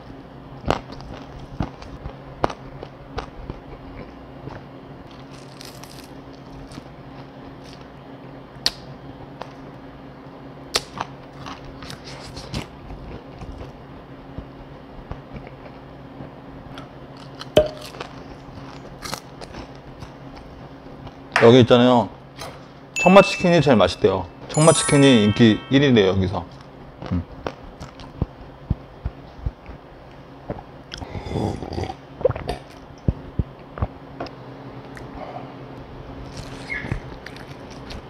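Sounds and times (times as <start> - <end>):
person chewing food: 0.7 - 7.8.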